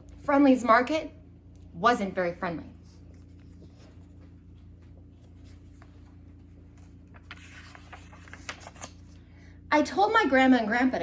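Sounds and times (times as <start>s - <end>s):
low steady hum: 0.0s - 11.0s
paper page rustling and turning: 2.8s - 9.2s.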